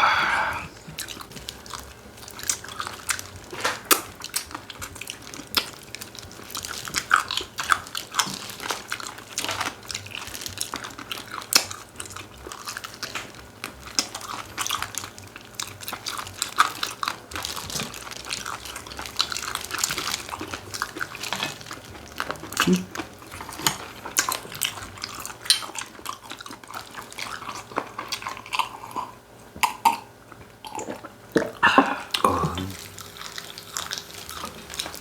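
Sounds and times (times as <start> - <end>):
chewing and crunching: 0.7 - 35.0.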